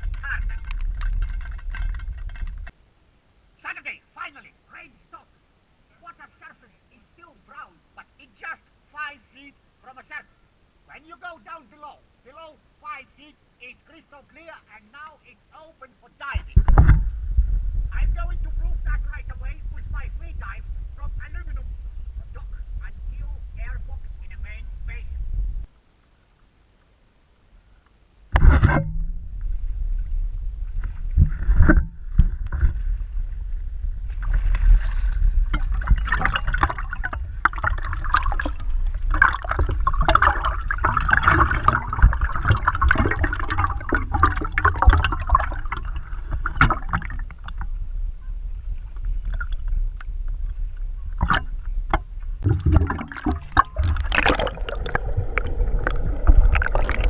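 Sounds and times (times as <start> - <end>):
steady low rumble: 0.0 - 3.4, 16.4 - 25.9, 26.6 - 57.0
water splashing and gurgling: 30.1 - 57.0.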